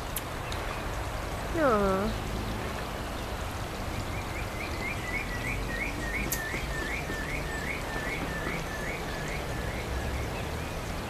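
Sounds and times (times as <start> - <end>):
bird chirping: 3.0 - 11.0.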